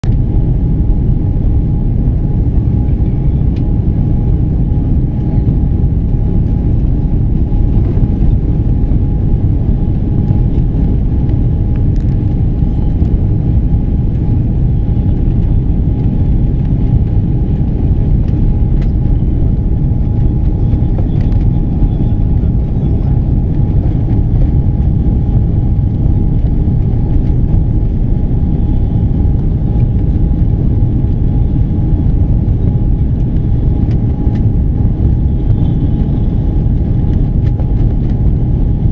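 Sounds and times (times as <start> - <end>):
airliner cabin engine rumble: 0.0 - 38.9
steady whine: 0.0 - 38.9.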